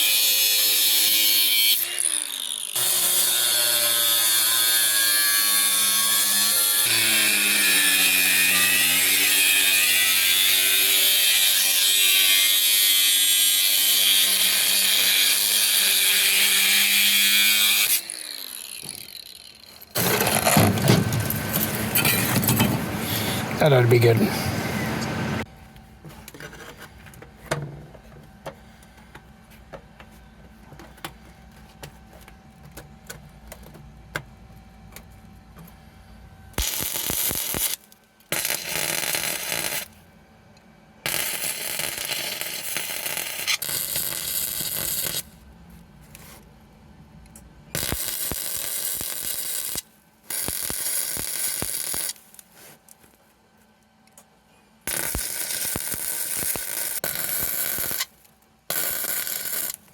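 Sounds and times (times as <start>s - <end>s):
welder crackling hiss: 36.6s - 39.9s, 41.1s - 45.3s, 47.8s - 52.4s, 54.9s - 58.1s, 58.7s - 59.8s.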